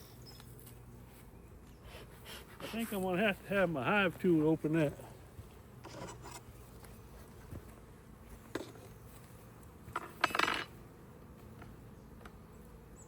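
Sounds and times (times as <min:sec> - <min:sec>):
metal tool scraping hive cover: 0:02.1 - 0:03.2, 0:05.8 - 0:06.5.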